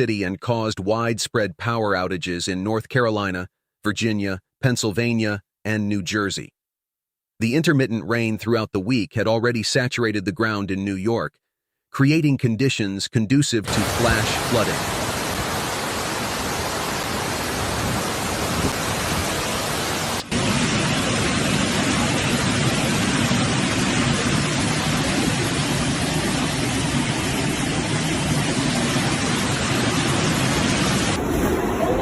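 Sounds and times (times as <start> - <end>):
rushing storm water: 13.7 - 32.0.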